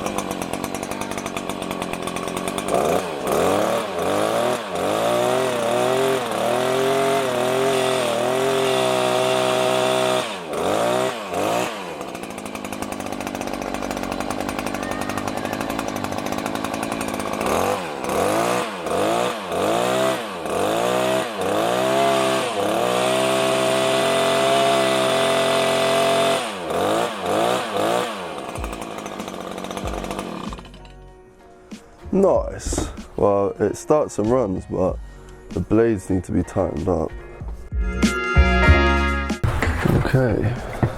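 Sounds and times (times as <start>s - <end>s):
hedge trimmer engine revving: 0.0s - 31.0s, 32.6s - 33.4s.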